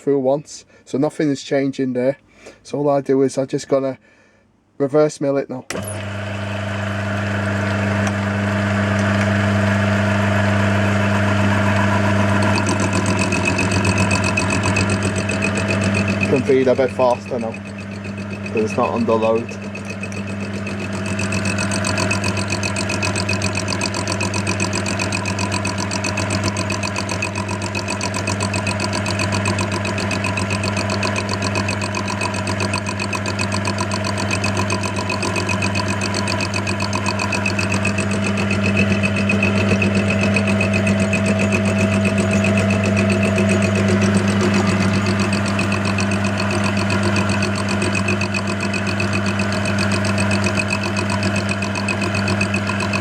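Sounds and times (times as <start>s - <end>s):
lathe motor humming: 5.7s - 53.0s.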